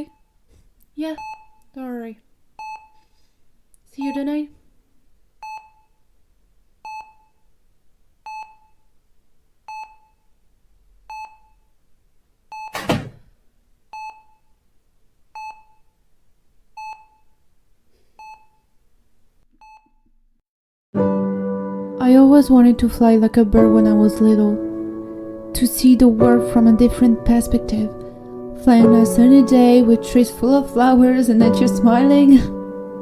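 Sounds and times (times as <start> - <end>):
patient monitor beeping: 1.1 - 1.6, 2.6 - 3.0.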